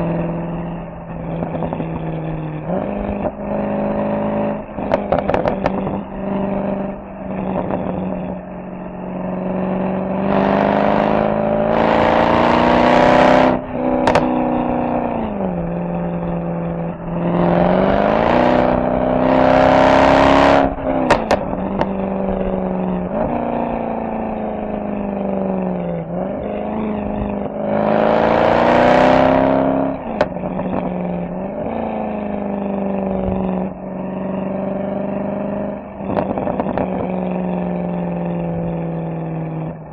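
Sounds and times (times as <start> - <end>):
car exhaust accelerating: 0.0 - 39.9
exhaust pops: 4.8 - 6.1, 13.9 - 14.5, 20.8 - 22.4, 30.0 - 31.0, 36.0 - 37.1.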